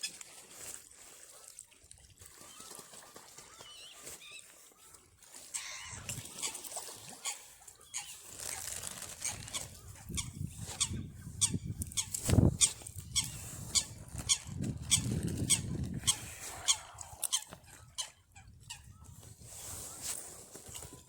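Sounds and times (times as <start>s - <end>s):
geese honking: 5.5s - 6.5s, 15.5s - 18.2s.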